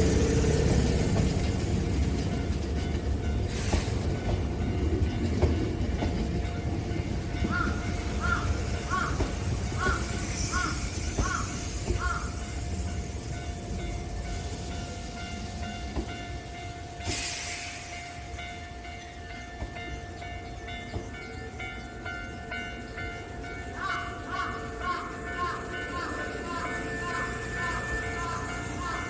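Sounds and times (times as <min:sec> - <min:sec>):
crossing alarm ringing: 0:00.0 - 0:29.0
electric train rumbling: 0:00.0 - 0:29.0
crows cawing: 0:07.4 - 0:12.5, 0:23.7 - 0:29.0
air brake hiss: 0:17.0 - 0:18.2.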